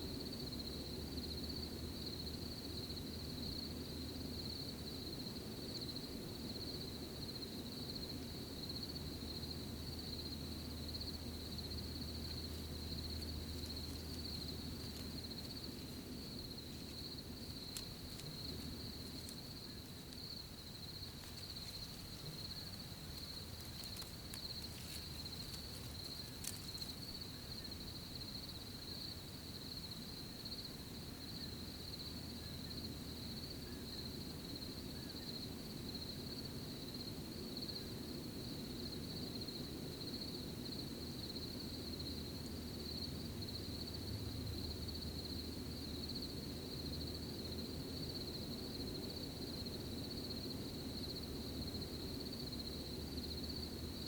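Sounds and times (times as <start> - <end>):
low outdoor rumble: 0.0 - 29.4, 41.7 - 48.7
crickets chirping: 0.0 - 54.0
faint ticks: 12.1 - 16.0, 16.7 - 27.8.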